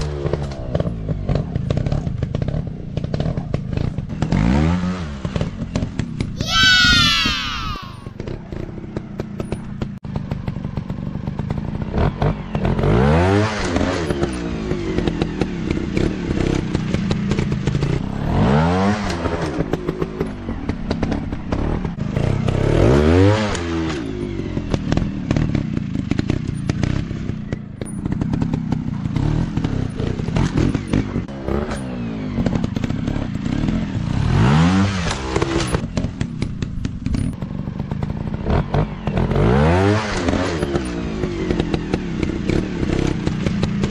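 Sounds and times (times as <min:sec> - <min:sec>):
dirt bike engines revving: 0:06.4 - 0:09.9.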